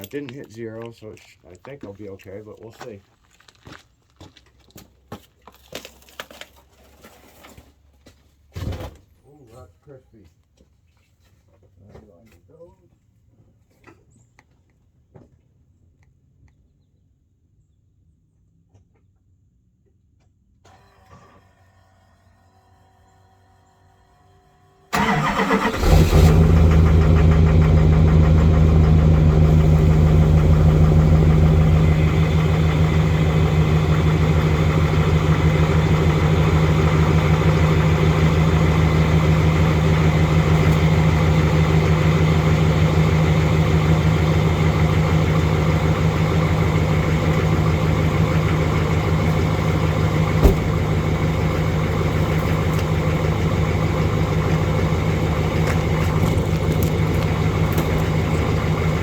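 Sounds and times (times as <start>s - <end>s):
diesel engine cranking: 24.9s - 59.0s
diesel engine idling: 24.9s - 59.0s.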